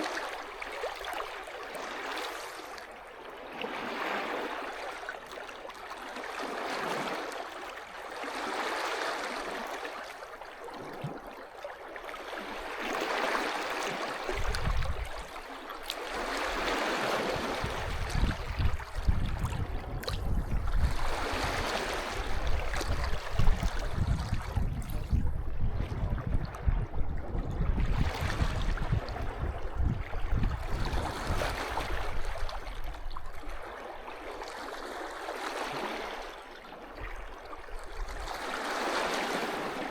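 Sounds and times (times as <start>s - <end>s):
sea waves washing onto beach: 0.0s - 5.3s, 12.1s - 25.4s, 28.0s - 39.9s.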